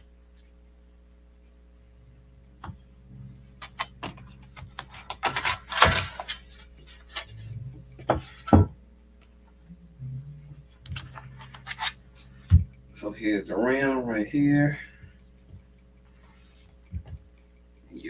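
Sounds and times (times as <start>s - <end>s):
scraping rustle: 4.9s - 7.6s.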